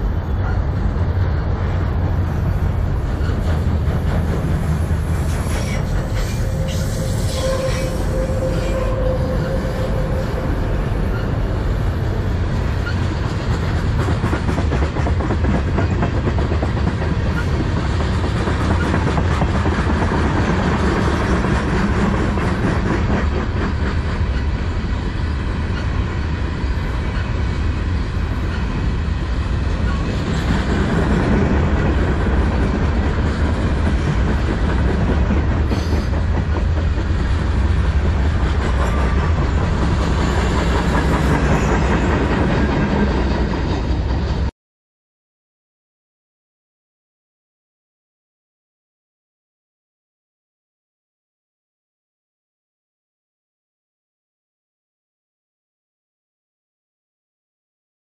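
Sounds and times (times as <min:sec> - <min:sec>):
freight train wheels rumbling: 0:00.0 - 0:44.5.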